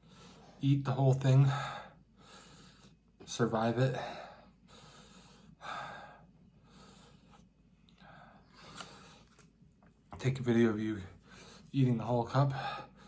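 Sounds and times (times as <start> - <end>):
person breathing hard: 1.5 - 3.0, 4.0 - 9.3.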